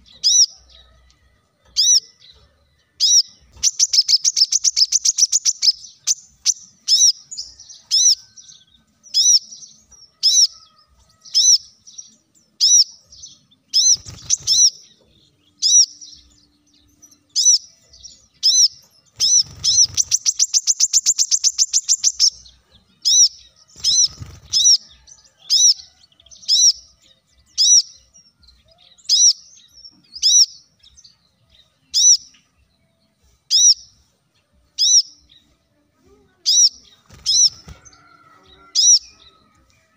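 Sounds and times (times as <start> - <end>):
bird chirping: 0.0 - 35.8, 36.4 - 39.9
bird rattling trill: 19.2 - 22.4.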